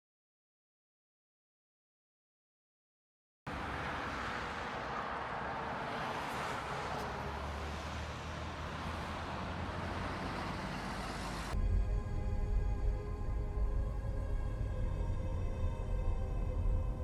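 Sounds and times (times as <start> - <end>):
in-car road and engine noise: 3.5 - 17.0
background music: 11.5 - 17.0.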